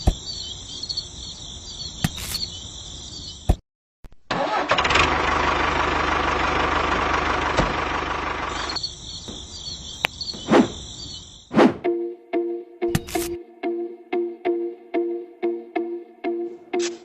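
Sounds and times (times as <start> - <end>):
high insect chirring: 0.0 - 3.5, 8.5 - 11.5
engine running: 4.3 - 8.8.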